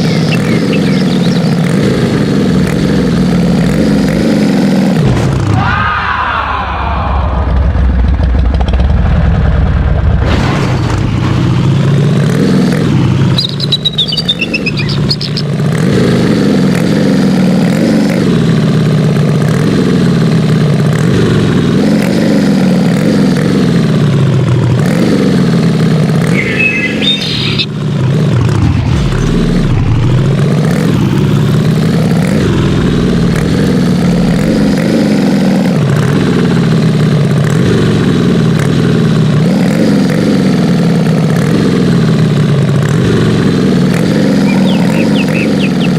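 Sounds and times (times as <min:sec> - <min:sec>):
truck engine revving: 0:00.0 - 0:05.6, 0:07.6 - 0:45.9.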